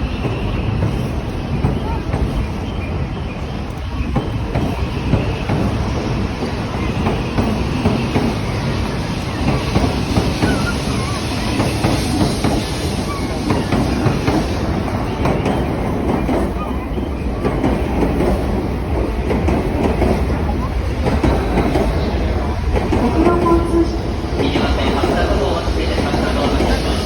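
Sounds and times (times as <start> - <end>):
train wheels clattering over rail joints: 3.6 - 8.6.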